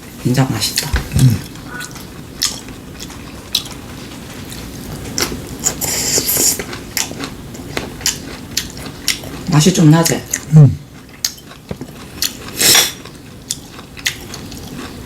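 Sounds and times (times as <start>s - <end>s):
people chewing food: 0.0s - 15.0s.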